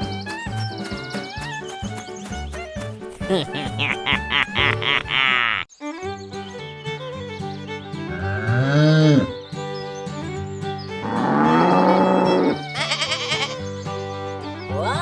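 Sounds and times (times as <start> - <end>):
background music: 0.0 - 15.0
farm animal calls: 11.0 - 13.6.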